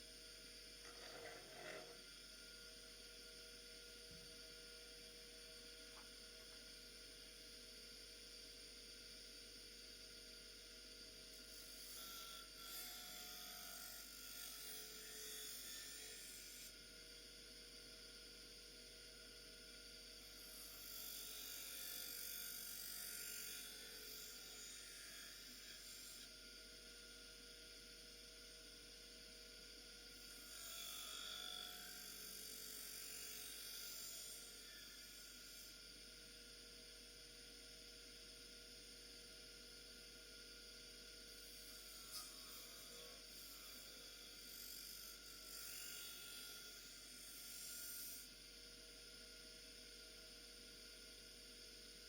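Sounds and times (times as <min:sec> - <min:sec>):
bench grinder whining: 0:00.8 - 0:02.2.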